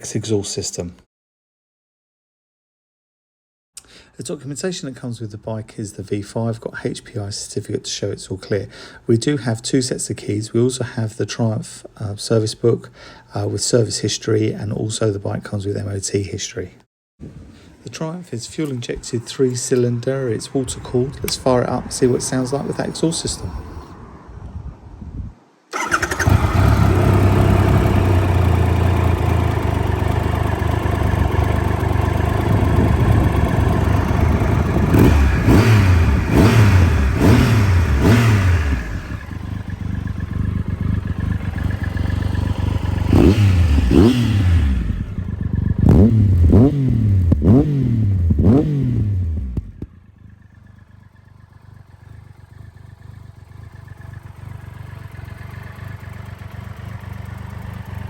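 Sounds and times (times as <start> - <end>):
motorcycle engine idling and revving: 18.6 - 24.0, 25.7 - 58.0.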